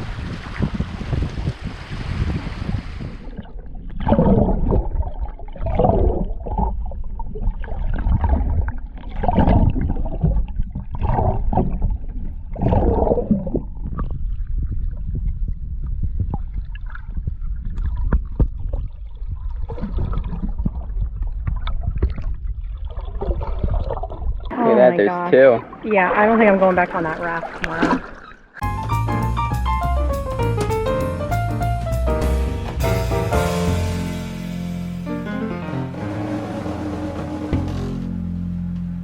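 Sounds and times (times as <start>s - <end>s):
muffled water gurgling and sloshing: 0.0s - 24.5s, 35.7s - 39.0s
wind and sea noise on microphone: 0.0s - 27.1s.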